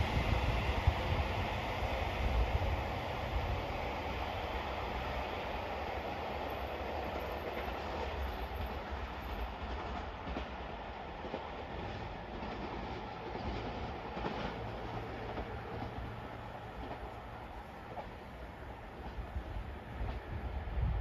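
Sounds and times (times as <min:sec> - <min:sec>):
train wheels clattering over rail joints: 0:06.5 - 0:20.4.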